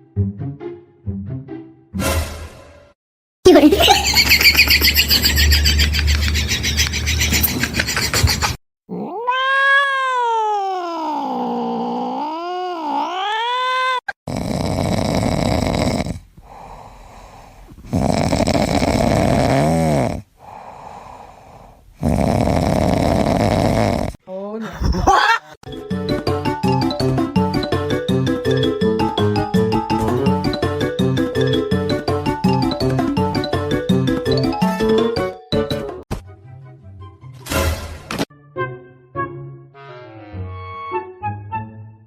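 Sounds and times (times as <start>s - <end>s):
background noise: 7.0s - 25.6s
short meow: 8.9s - 11.4s
cat yowling: 8.9s - 14.1s.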